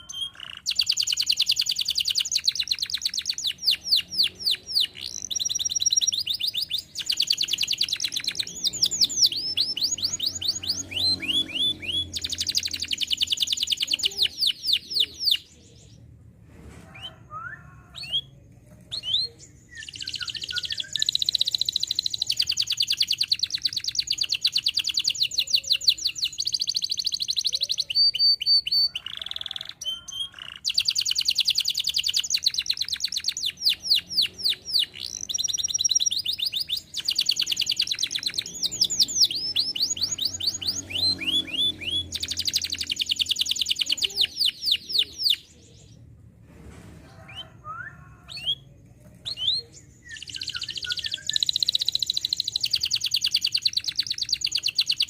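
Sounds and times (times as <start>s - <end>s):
canary singing trills: 0.0s - 16.0s, 17.0s - 46.1s, 47.3s - 55.0s.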